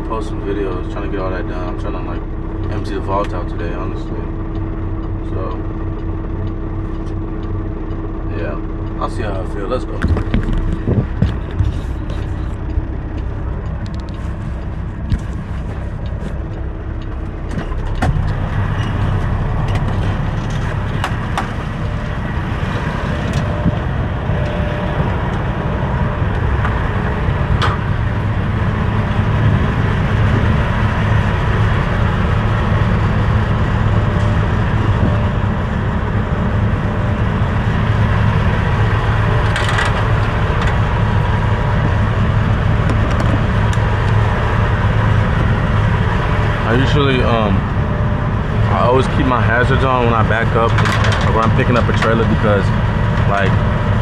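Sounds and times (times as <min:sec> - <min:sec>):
diesel truck engine rumbling: 0:00.0 - 0:54.0
clicks: 0:10.0 - 0:22.1.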